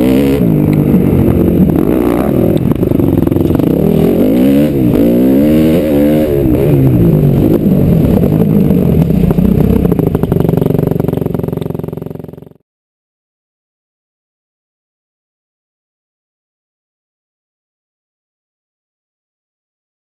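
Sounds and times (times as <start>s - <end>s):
motocross engine revving: 0.0s - 12.6s.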